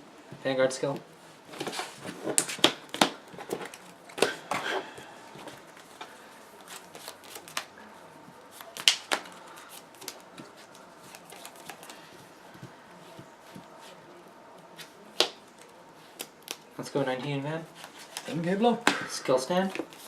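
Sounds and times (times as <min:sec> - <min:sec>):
cards tapping and clicking: 0:01.6 - 0:04.6.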